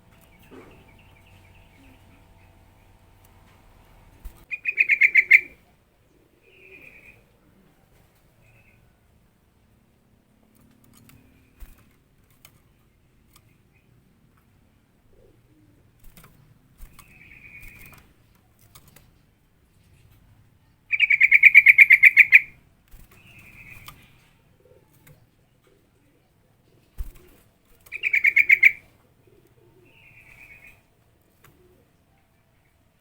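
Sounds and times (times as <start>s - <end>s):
bird calling with rapid chatter: 0.0s - 5.6s, 20.9s - 24.3s, 27.8s - 30.9s
soft bird call: 0.0s - 5.6s, 20.9s - 22.6s, 27.9s - 30.9s.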